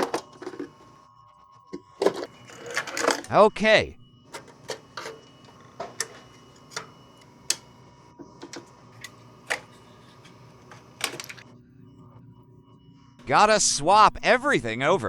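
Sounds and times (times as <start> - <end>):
sharp clicks of plastic parts: 0.0 - 1.0, 1.8 - 3.3, 4.3 - 11.5.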